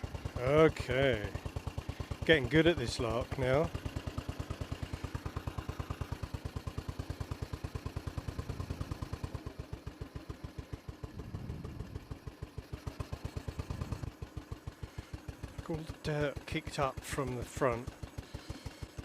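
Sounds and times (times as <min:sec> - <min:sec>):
motorcycle engine idling thump: 0:03.8 - 0:15.6.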